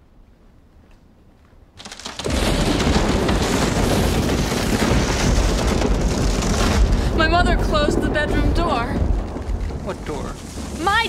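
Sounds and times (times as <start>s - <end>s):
thunder clap and rumble: 2.2s - 11.0s.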